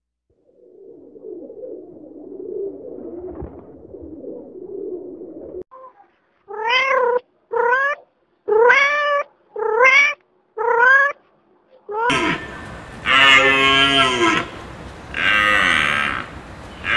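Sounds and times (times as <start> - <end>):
cat meowing: 6.5 - 11.2
low continuous murmuring: 11.6 - 16.9.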